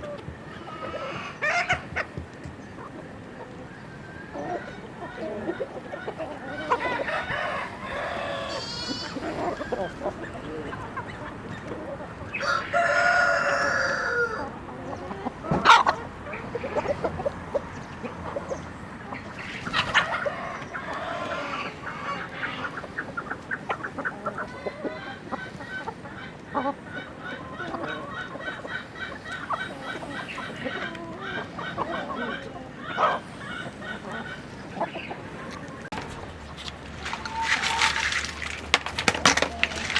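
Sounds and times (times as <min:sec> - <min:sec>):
chickens clucking: 0:00.0 - 0:39.9
rooster crowing: 0:06.6 - 0:09.2, 0:12.4 - 0:14.5, 0:20.0 - 0:22.2.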